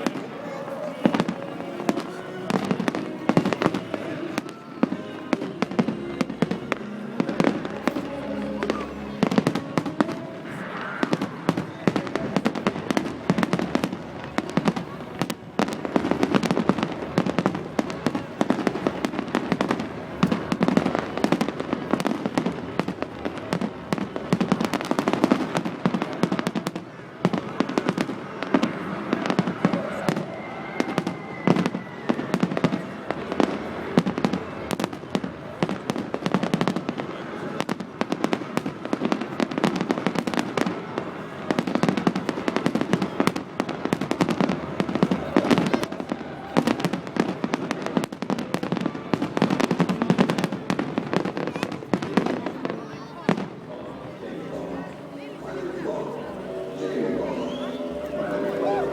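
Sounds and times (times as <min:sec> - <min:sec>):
fireworks bangs and crackles: 0:00.0 - 0:58.9
high firework whistle: 0:29.3 - 0:32.8, 0:54.8 - 0:58.9.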